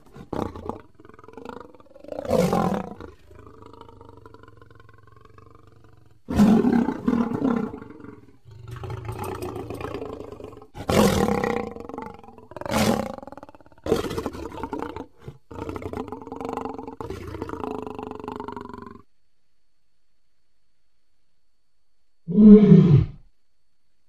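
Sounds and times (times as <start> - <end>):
lion roaring: 0.0 - 19.0.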